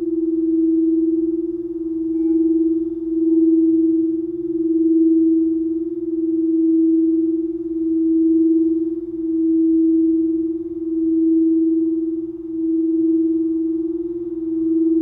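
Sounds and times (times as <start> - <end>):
singing bowl tone: 0.0 - 15.0.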